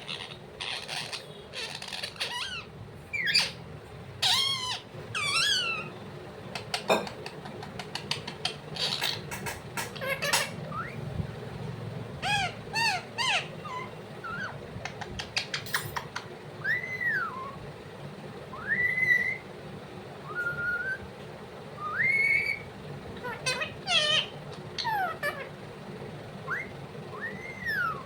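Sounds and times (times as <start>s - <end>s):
parrot whistling: 4.2s - 6.0s, 9.9s - 11.0s, 12.2s - 14.6s, 16.6s - 17.6s, 18.5s - 19.5s, 20.2s - 21.1s, 21.8s - 25.5s, 26.4s - 28.0s.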